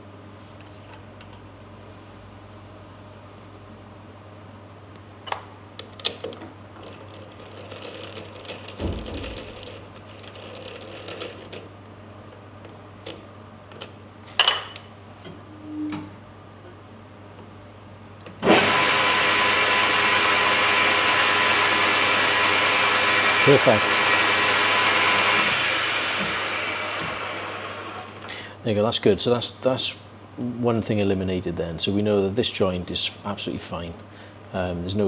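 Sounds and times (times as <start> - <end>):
lathe running: 18.4 - 28.3.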